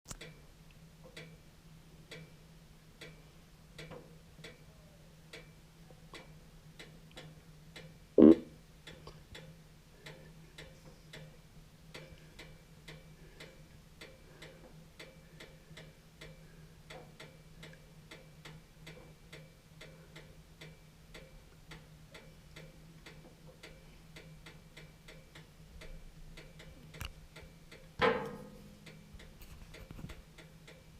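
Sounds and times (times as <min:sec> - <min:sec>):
steady ticking: 0:03.0 - 0:04.6, 0:06.2 - 0:30.9
low steady hum: 0:07.7 - 0:30.9.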